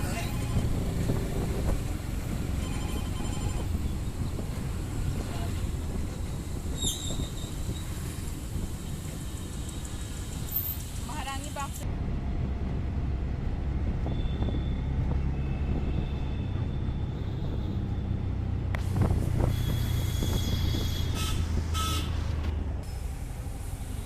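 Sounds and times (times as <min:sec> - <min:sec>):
vehicle engine rumble: 0:00.0 - 0:24.0.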